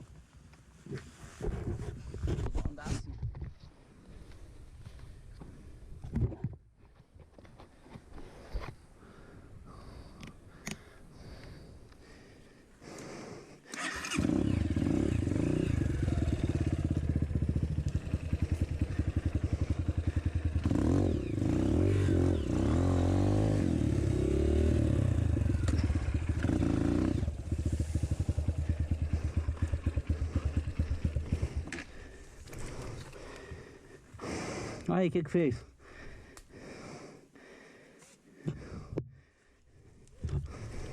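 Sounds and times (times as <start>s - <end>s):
dirt bike engine running and revving: 14.0s - 33.7s.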